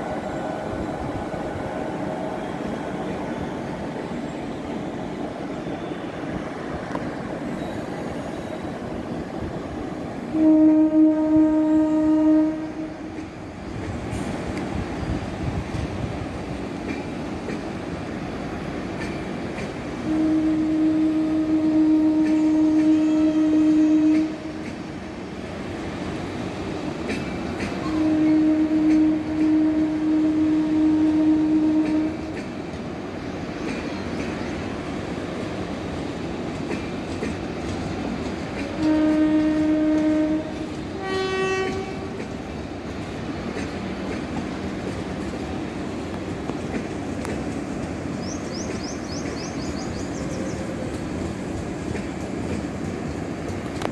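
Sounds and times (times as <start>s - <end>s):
train coaches rumbling past: 0.0s - 53.9s
locomotive air horn: 10.2s - 13.1s, 20.0s - 24.6s, 27.8s - 32.3s, 38.8s - 42.2s.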